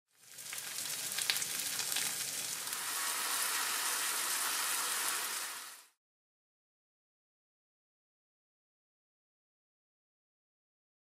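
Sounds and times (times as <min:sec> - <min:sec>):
tofu and leek sizzling in a pan: 0:00.1 - 0:06.0
sharp crackling pops: 0:00.4 - 0:02.6.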